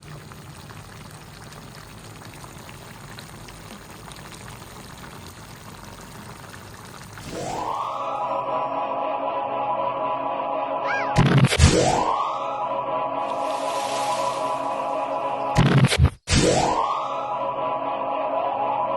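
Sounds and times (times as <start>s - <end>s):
steady watery noise: 0.0s - 9.4s, 11.5s - 17.9s
music with rising sweep: 7.3s - 15.7s, 16.5s - 18.9s.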